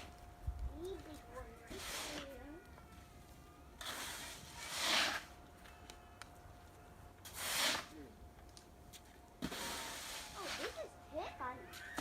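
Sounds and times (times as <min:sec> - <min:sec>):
shovel scraping crunching snow: 0:01.6 - 0:02.4, 0:03.8 - 0:05.4, 0:07.2 - 0:08.1, 0:09.4 - 0:10.9.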